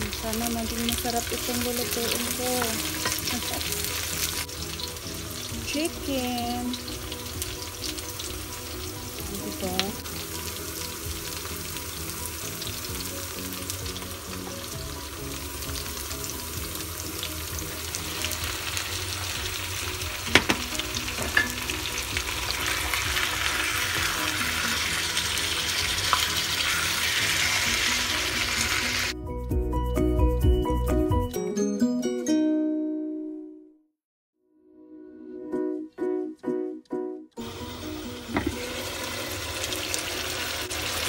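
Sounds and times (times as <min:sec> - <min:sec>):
chicken sizzling in a wok: 0:00.0 - 0:29.2, 0:37.4 - 0:41.0
knocks against a pan: 0:20.3 - 0:21.6, 0:38.3 - 0:38.6.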